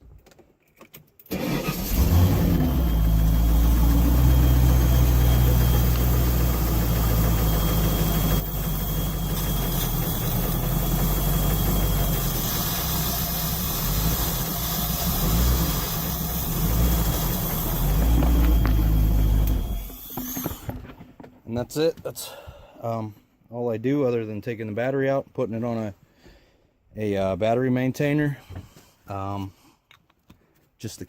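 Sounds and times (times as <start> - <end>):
boat engine idling: 3.0 - 19.9.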